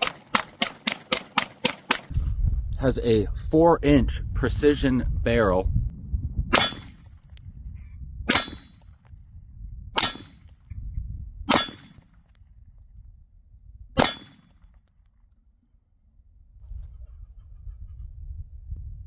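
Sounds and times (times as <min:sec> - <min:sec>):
pistol shots: 0:00.0 - 0:02.1, 0:06.5 - 0:07.1, 0:08.3 - 0:08.8, 0:10.0 - 0:10.5, 0:11.5 - 0:12.2, 0:14.0 - 0:14.6.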